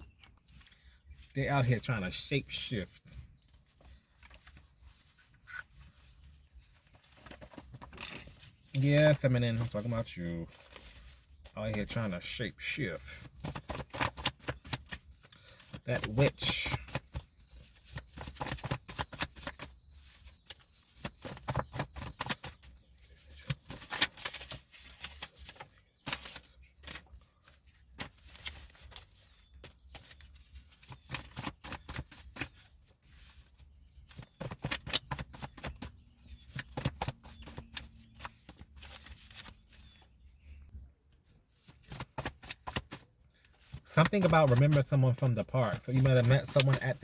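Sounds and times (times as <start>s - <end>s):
cards being shuffled: 30.8s - 33.4s, 36.5s - 39.8s, 41.7s - 43.0s, 43.6s - 47.0s.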